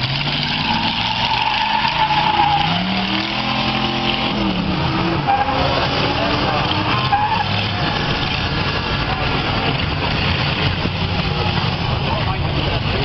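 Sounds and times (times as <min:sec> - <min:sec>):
car engines revving: 0:00.0 - 0:13.0
tires squealing on pavement: 0:00.0 - 0:13.0.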